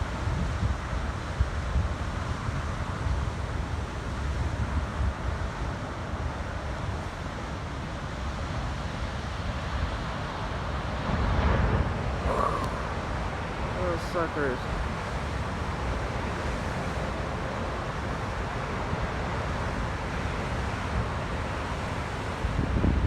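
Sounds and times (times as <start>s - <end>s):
ocean surf rushing: 2.3s - 23.0s
wind buffeting microphone: 22.2s - 23.0s.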